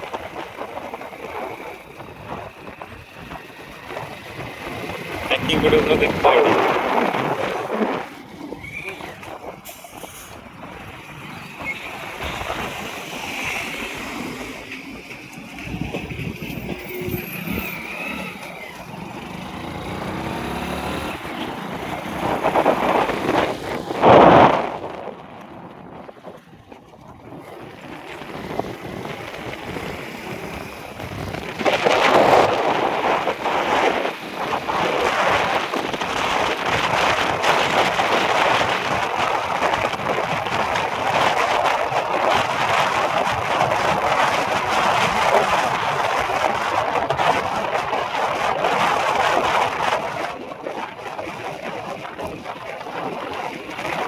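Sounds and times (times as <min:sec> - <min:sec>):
road and wind noise: 0:00.0 - 0:54.0
vehicle passing loudly: 0:03.7 - 0:10.4, 0:11.9 - 0:25.8.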